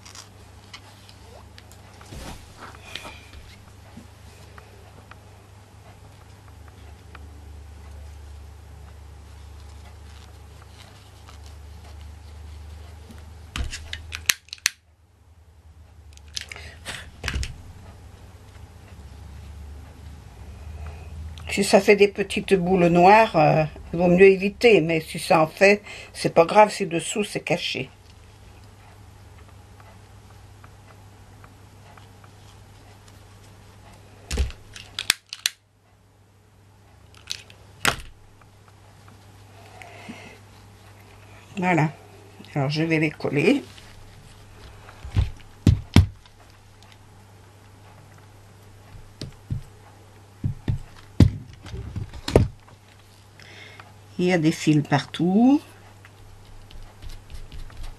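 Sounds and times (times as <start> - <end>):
rustling scrape: 0.0 - 4.5, 9.4 - 13.1, 43.6 - 45.1
steady low hum: 0.0 - 57.9
sharp clicks and snips: 13.7 - 14.9, 34.7 - 35.6.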